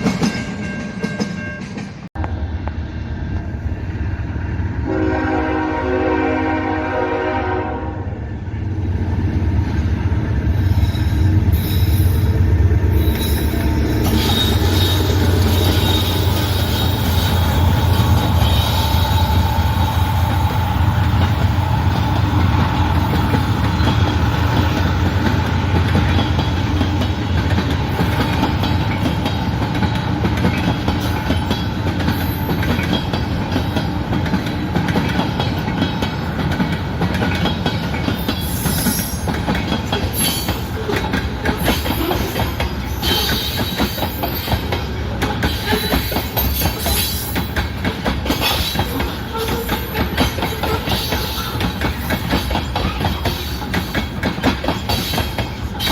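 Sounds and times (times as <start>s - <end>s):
wheels clicking over rail joints: 9.6s - 55.9s
train wheel squeal: 10.5s - 29.2s, 30.6s - 33.1s, 37.9s - 55.9s.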